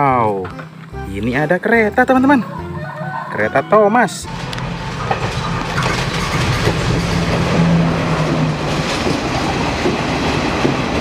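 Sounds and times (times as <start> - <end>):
train wheels clattering over rail joints: 4.3 - 11.0.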